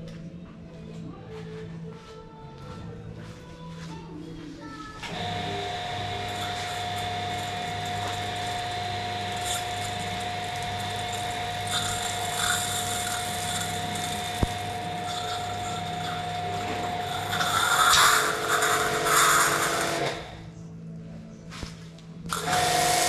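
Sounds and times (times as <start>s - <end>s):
machine motor whining: 5.1s - 20.5s, 22.3s - 23.0s.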